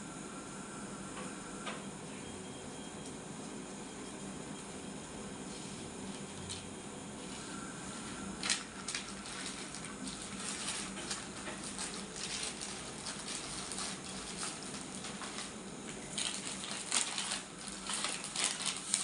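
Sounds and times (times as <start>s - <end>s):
low steady hum: 0.0s - 19.0s
plastic packaging crinkling: 8.4s - 19.0s.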